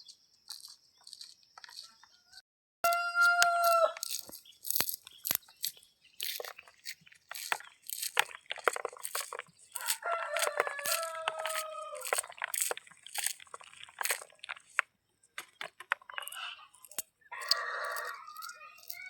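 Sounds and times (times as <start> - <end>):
sharp crunching clicks: 0.0 - 2.2, 2.9 - 19.0
rooster crowing: 2.2 - 4.2, 9.8 - 12.2, 17.3 - 19.0.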